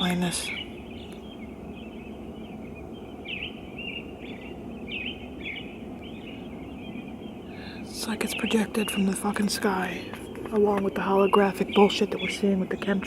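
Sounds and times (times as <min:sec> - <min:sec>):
low background noise: 0:00.0 - 0:13.0
songbirds chirping: 0:00.0 - 0:13.0.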